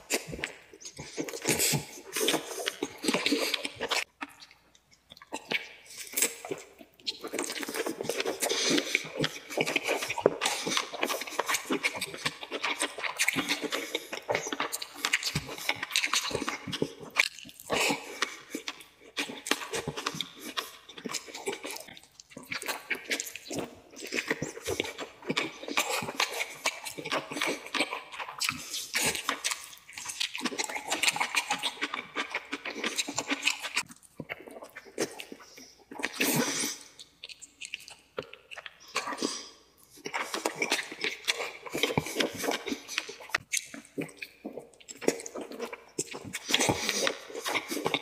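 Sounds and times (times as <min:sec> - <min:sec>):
wet chewing and lip smacking: 0:00.0 - 0:48.0.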